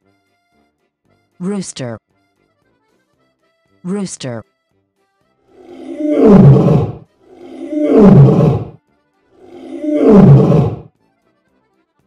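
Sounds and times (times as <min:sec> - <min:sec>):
lion roaring: 0:05.6 - 0:08.8, 0:09.4 - 0:10.9.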